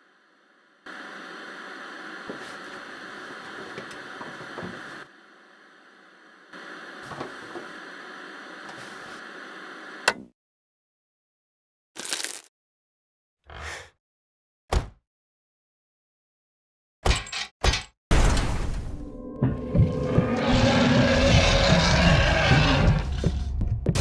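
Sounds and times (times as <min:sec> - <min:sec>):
static hissing: 0:00.0 - 0:10.0.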